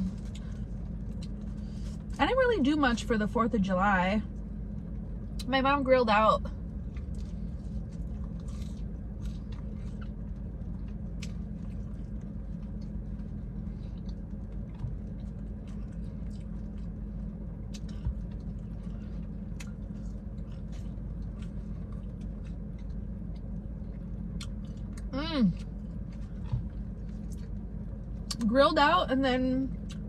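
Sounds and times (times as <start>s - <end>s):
person chewing food: 0.0s - 2.2s, 6.7s - 28.4s, 29.8s - 30.0s
low background hum: 0.0s - 30.0s.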